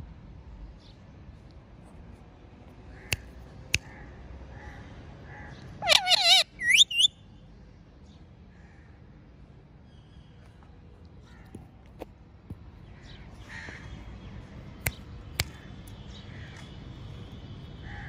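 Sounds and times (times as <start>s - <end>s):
harsh bird calls: 3.8s - 7.2s.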